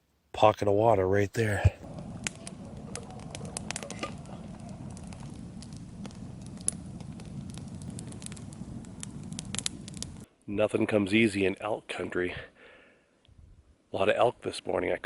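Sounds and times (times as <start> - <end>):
spring water trickling: 1.8 - 10.2.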